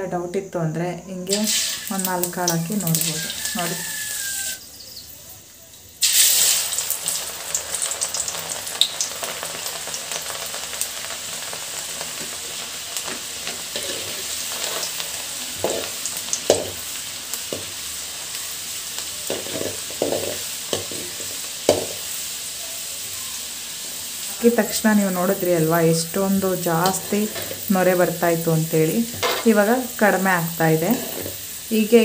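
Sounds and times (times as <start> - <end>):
lentils deep-frying in oil: 1.2 - 32.0
stirring scrapes in pan: 12.2 - 16.9, 19.2 - 22.2, 27.2 - 27.7, 29.1 - 29.6, 30.9 - 31.5.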